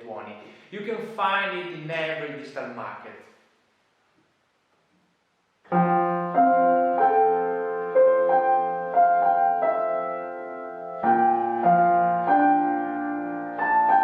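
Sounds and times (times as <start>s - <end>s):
solo piano music: 5.7s - 14.0s.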